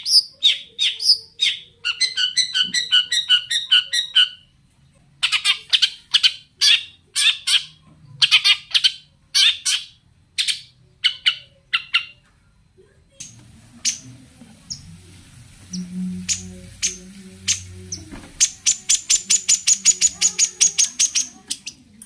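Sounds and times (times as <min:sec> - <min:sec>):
low hiss: 0:13.2 - 0:22.0
shrike harsh rasping calls: 0:14.7 - 0:21.7.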